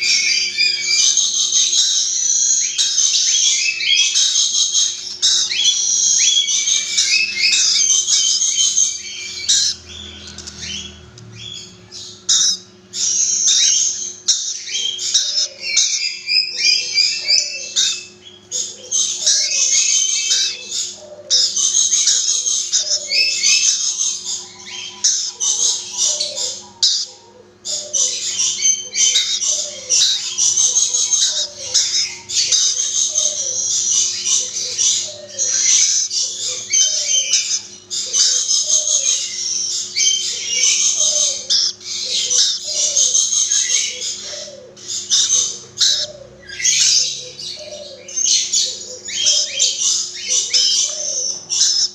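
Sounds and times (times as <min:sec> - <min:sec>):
lorikeets chattering and squawking: 0:00.0 - 0:51.9.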